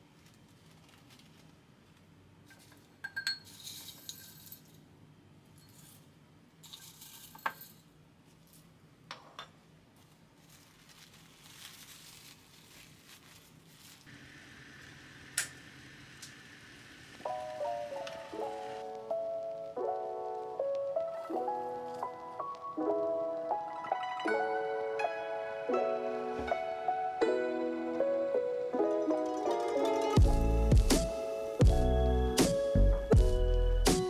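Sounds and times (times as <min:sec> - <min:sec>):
kitchen items clinking: 0:02.5 - 0:04.9, 0:05.6 - 0:09.6.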